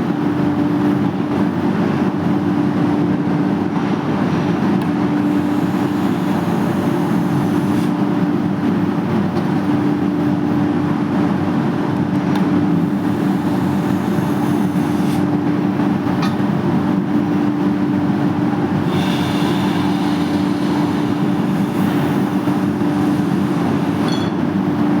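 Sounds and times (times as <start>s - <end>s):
machine running with low hum: 0.0s - 25.0s.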